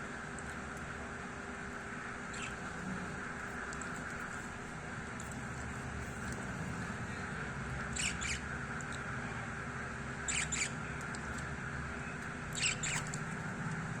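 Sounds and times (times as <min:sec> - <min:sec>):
bird squeaky calls: 0:02.3 - 0:02.6, 0:07.9 - 0:08.4, 0:10.3 - 0:10.8, 0:12.6 - 0:13.2.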